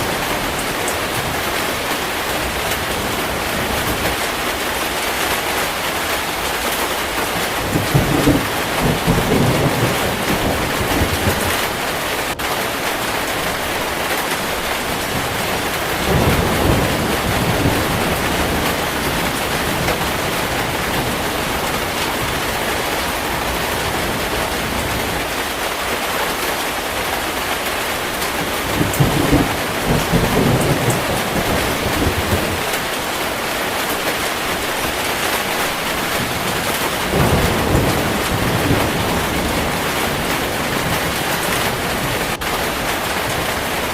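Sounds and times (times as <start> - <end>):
heavy rain falling: 0.0 - 43.9
thunder rolling: 7.0 - 25.2, 28.2 - 43.9.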